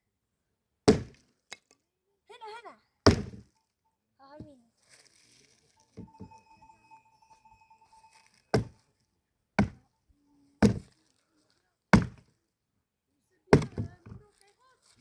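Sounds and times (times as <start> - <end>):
axe chopping wood: 0.9 - 1.6, 3.1 - 3.5, 9.6 - 9.8, 10.6 - 10.9, 12.0 - 12.3, 13.5 - 14.2.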